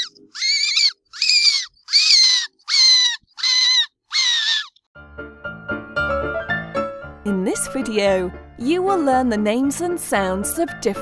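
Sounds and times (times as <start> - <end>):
rat squeaking: 0.0 - 4.8.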